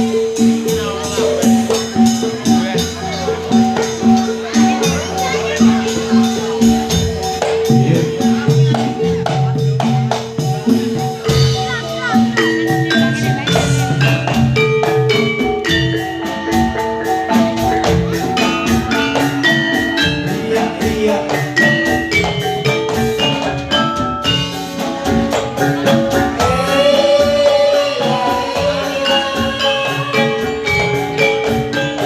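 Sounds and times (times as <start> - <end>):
regular drum beats: 0.0 - 32.0
struck metallophone notes: 0.0 - 32.0
held wavering note: 26.4 - 31.4.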